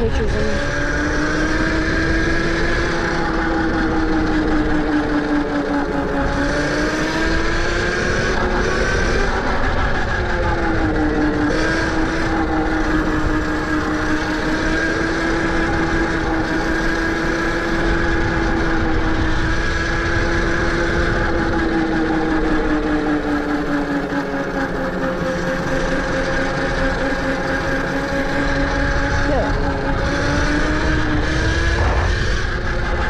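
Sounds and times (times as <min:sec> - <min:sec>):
electric motor whining: 0:00.0 - 0:33.0
wind rush: 0:28.8 - 0:33.0.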